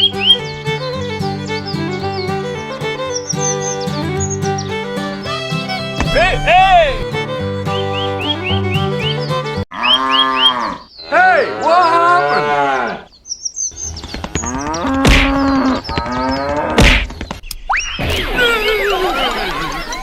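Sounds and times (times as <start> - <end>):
sharp knocks: 5.3 - 7.8
cattle mooing: 9.7 - 13.1.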